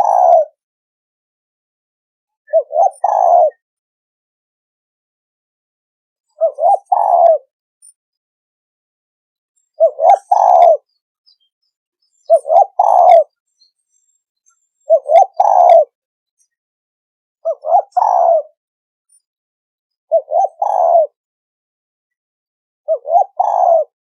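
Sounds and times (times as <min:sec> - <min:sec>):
dove cooing: 0:00.0 - 0:00.6, 0:02.5 - 0:03.6, 0:06.4 - 0:07.5, 0:09.8 - 0:10.9, 0:12.3 - 0:13.3, 0:14.9 - 0:16.0, 0:17.4 - 0:18.6, 0:20.1 - 0:21.2, 0:22.9 - 0:24.0.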